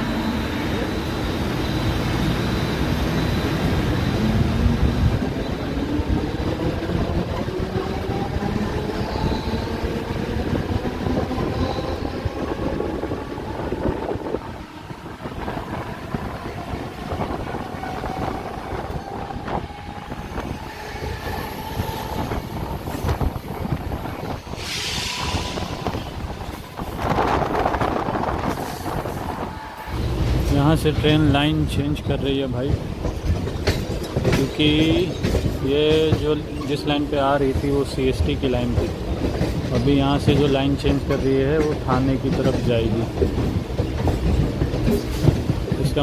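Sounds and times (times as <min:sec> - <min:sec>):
rail-joint clicks: 0:30.0 - 0:46.0.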